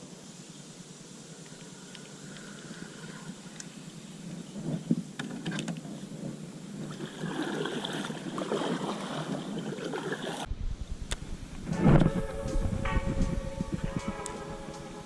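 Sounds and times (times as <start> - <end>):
wind on microphone: 4.1 - 7.5, 10.4 - 15.0
water sloshing and splashing: 6.8 - 10.5.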